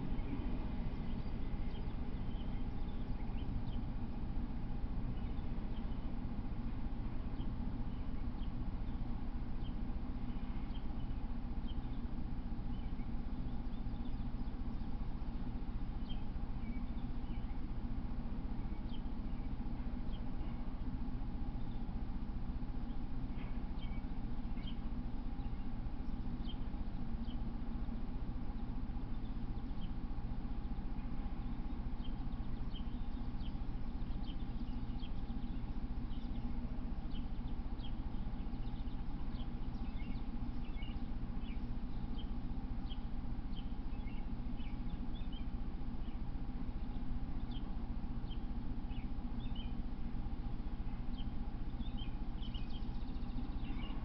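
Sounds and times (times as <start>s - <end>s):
small birds chirping: 0.0s - 54.0s
steady low hum: 0.0s - 54.0s.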